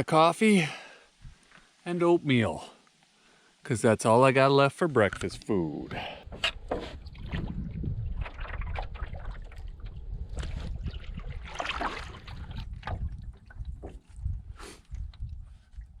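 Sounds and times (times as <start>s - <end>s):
water trickling off paddle: 6.0s - 15.9s
paddle splashing in water: 6.2s - 14.2s
wind rumble on microphone: 6.2s - 16.0s.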